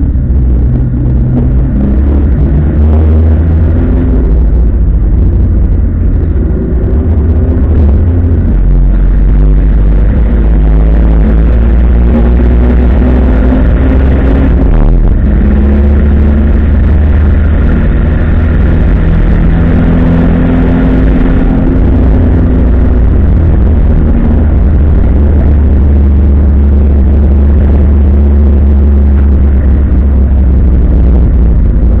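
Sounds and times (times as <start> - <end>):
race car engine running hard: 0.0 - 32.0.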